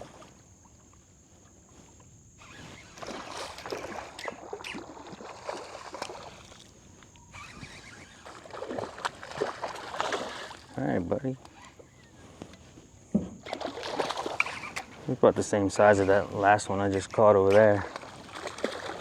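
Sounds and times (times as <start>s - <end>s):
water splashing and sloshing: 0.0s - 19.0s.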